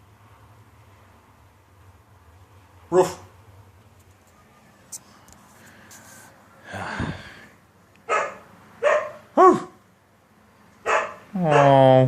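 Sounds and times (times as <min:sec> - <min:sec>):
dog barking: 0:02.9 - 0:03.3, 0:08.0 - 0:09.8, 0:10.8 - 0:11.9.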